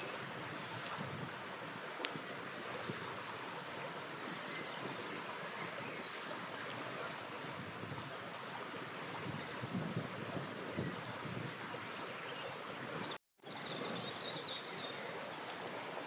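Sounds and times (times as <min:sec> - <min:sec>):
river water flowing: 0:00.0 - 0:16.0.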